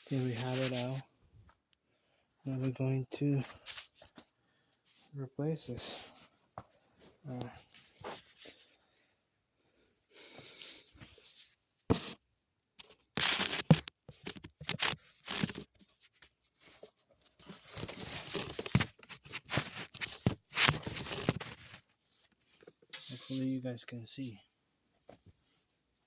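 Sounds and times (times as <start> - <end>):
tearing and crinkling: 13.0 - 16.1, 17.4 - 21.9.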